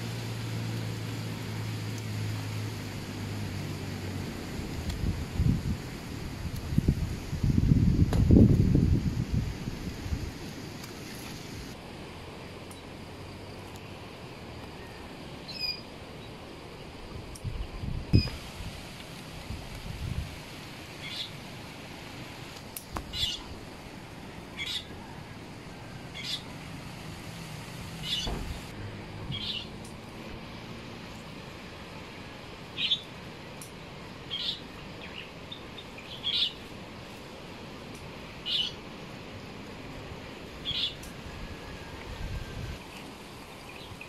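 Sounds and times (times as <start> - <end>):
background hiss: 0.0 - 44.0
bird chirping: 14.8 - 15.9, 23.1 - 23.5, 28.0 - 28.7, 29.3 - 29.7, 32.8 - 33.1, 34.3 - 36.6, 40.6 - 41.0.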